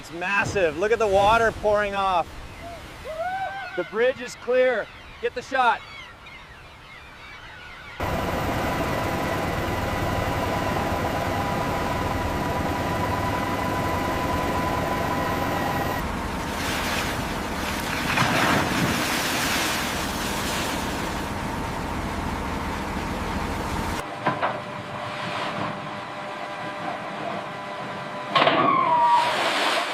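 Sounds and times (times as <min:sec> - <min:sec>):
surging waves: 0:00.0 - 0:04.7, 0:08.0 - 0:22.0
machinery hum and whine: 0:08.0 - 0:29.1
rushing water: 0:15.4 - 0:21.4.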